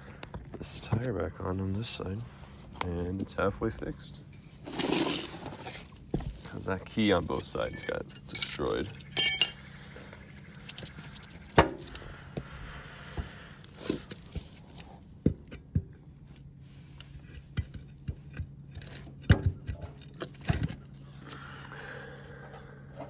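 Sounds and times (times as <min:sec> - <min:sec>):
steady low hum: 0:05.7 - 0:18.7.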